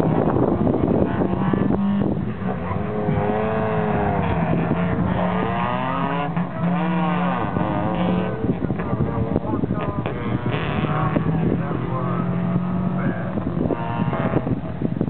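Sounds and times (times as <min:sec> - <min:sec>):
car engine revving: 0:00.0 - 0:15.0
steady low hum: 0:00.0 - 0:15.0.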